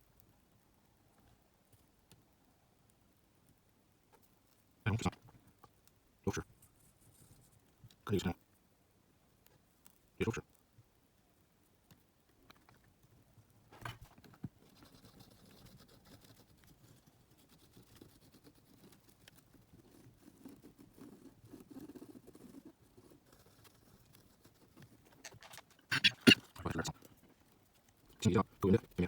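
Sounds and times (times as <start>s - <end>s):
rubbing and light clicks: 4.1s - 8.0s, 11.8s - 29.0s.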